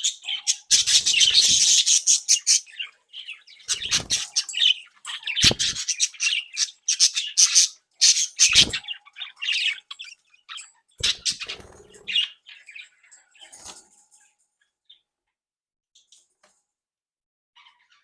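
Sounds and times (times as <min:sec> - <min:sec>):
budgerigars chattering: 0:00.0 - 0:13.5.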